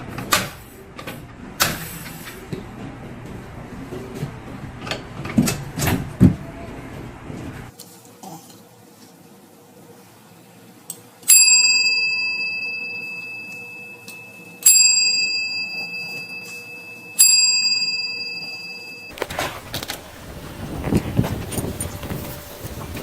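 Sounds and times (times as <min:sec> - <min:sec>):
small bell ringing: 0:11.3 - 0:19.1.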